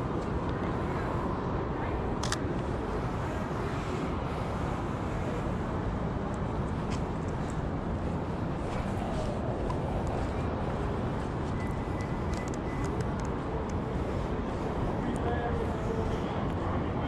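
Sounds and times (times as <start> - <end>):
city street traffic: 0.0 - 17.0
camera shutter click: 2.2 - 2.4.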